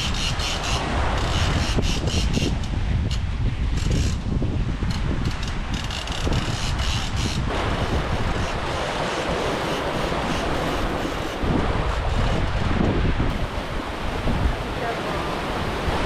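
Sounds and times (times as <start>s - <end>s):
sea waves rushing: 0.0s - 3.4s, 7.4s - 16.0s
wind buffeting microphone: 0.0s - 16.0s.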